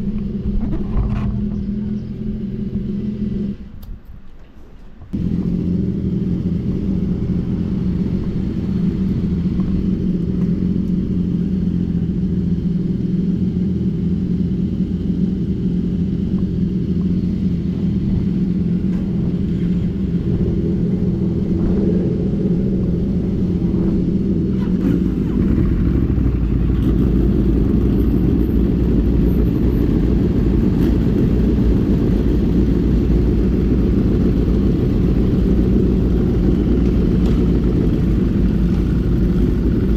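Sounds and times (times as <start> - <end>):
road and engine noise: 0.0 - 39.9
wind buffeting microphone: 16.4 - 39.9.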